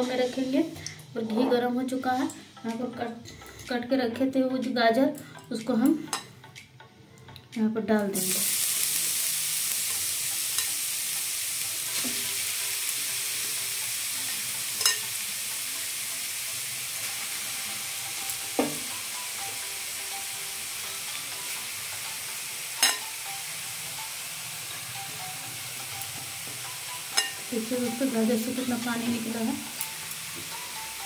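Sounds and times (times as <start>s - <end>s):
carrots sizzling in a pan: 8.1s - 31.0s.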